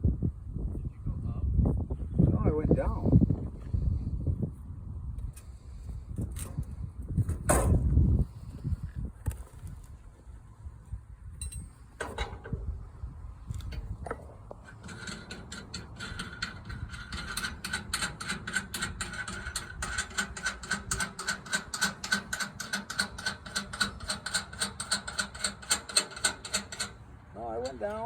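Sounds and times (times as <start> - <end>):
ratchet wrench clicking: 14.8 - 27.0.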